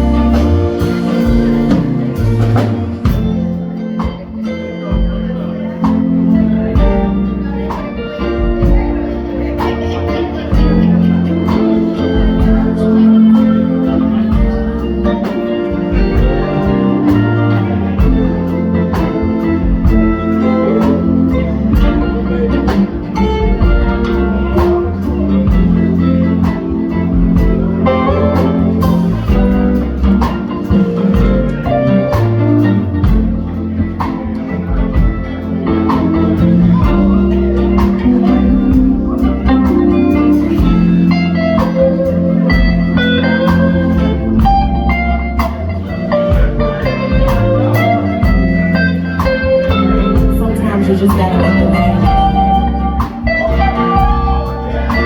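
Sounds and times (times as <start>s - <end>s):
guitar: 0.0s - 55.0s
live band instrumental: 0.0s - 55.0s.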